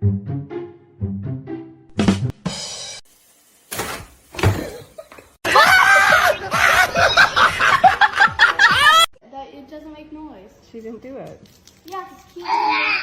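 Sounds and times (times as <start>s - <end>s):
people laughing hard: 5.4s - 9.1s.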